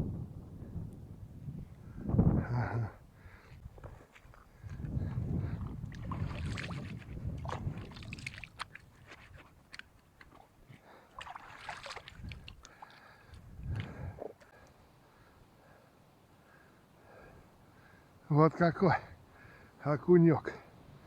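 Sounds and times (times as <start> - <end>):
wind buffeting microphone: 0.0 - 9.7, 11.8 - 14.4
handling rustling and clicks: 8.5 - 10.6.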